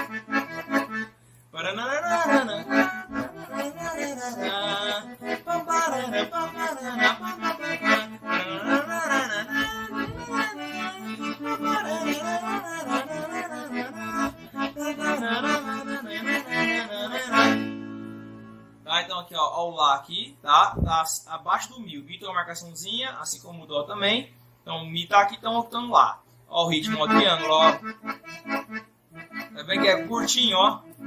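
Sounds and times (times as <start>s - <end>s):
accordion playing a tune: 0.0s - 19.2s, 26.6s - 31.0s.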